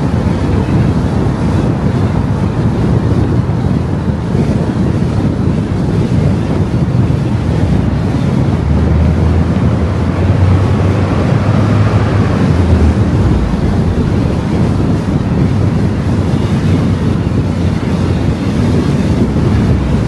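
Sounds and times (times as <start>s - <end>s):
tyre road and wind noise: 0.0s - 20.0s
low drone: 7.3s - 20.0s.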